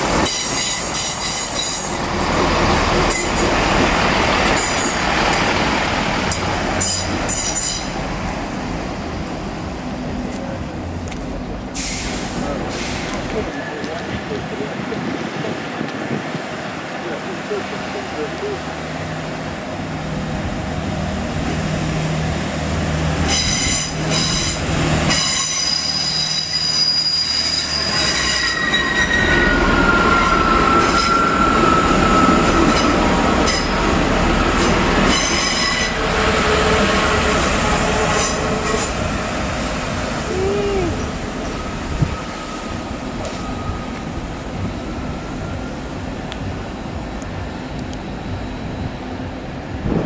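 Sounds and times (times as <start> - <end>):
train wheel flanges squealing: 23.2 - 33.8, 34.6 - 39.0.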